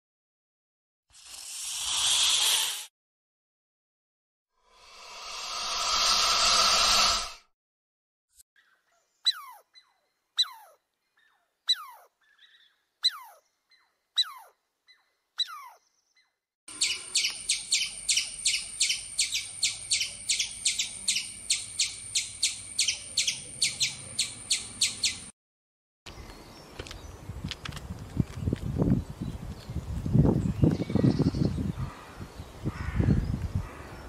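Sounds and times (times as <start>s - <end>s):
fast run of sharp chirps: 1.2s - 2.9s.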